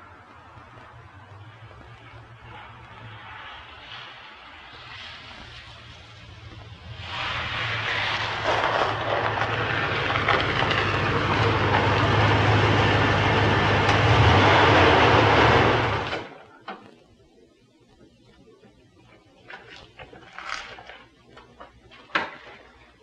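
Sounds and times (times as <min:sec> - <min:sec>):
car engine running: 0:06.0 - 0:16.3.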